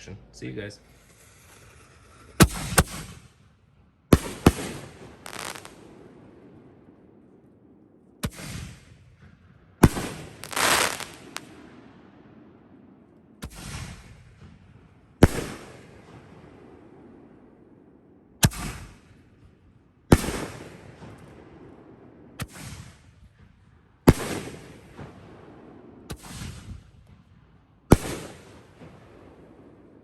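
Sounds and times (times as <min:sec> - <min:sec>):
firework mortar booms: 0:02.4 - 0:30.0.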